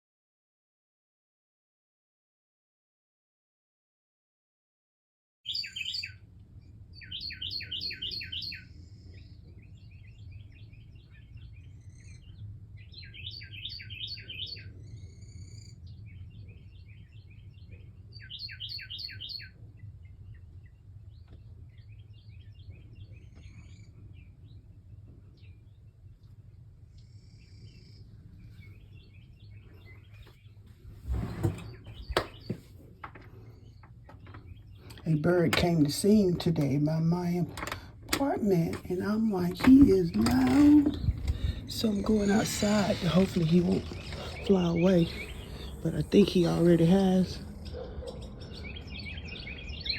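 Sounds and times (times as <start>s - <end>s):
songbird singing: 5.4s - 49.9s
faint bird chirps: 5.5s - 6.2s, 6.9s - 32.6s, 38.2s - 49.9s.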